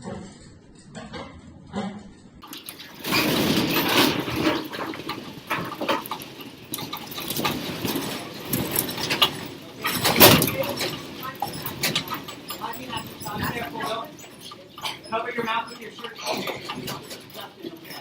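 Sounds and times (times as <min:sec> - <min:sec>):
building rattling and rumbling: 0:00.0 - 0:18.0
objects knocking and falling: 0:01.0 - 0:18.0.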